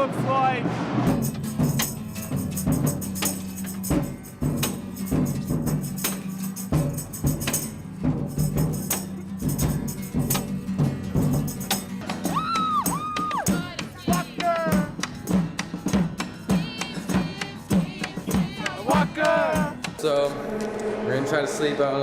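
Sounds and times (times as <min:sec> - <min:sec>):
drum or wood-block hits: 0:00.8 - 0:20.2
tambourine jingles: 0:01.2 - 0:19.9
sustained low tone: 0:20.1 - 0:22.0.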